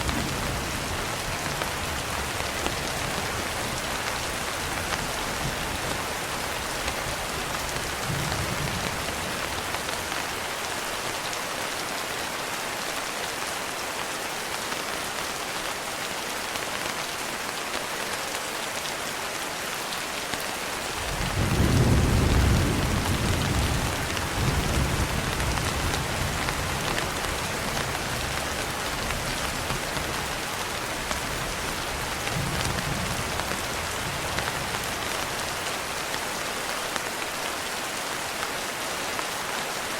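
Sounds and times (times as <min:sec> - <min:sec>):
steady rain: 0:00.0 - 0:39.9
thunder rumbling: 0:21.0 - 0:28.4.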